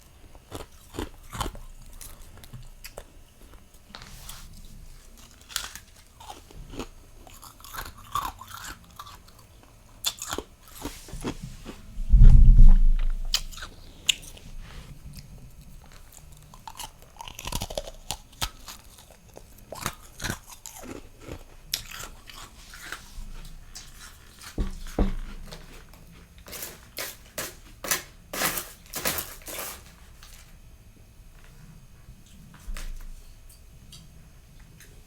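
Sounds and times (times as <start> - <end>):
loud low thump: 12.0 - 13.5.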